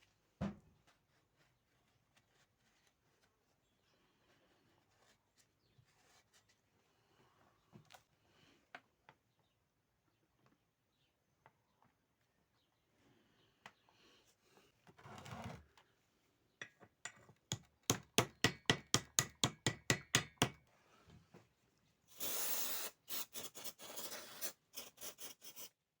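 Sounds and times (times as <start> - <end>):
hand tool tapping metal: 16.6 - 20.6.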